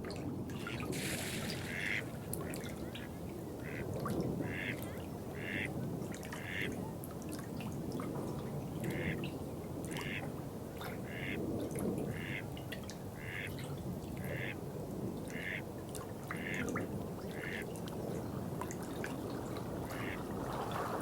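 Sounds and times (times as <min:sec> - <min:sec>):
running water: 0:00.0 - 0:06.7, 0:15.2 - 0:21.0.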